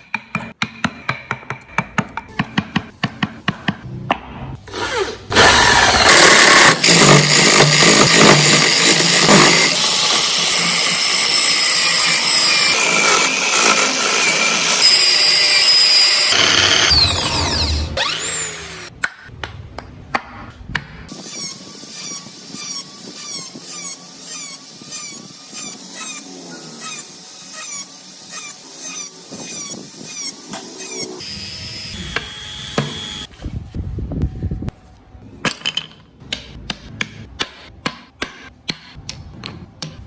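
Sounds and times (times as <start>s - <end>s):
power tool cutting wood: 4.7s - 18.9s, 21.1s - 33.3s.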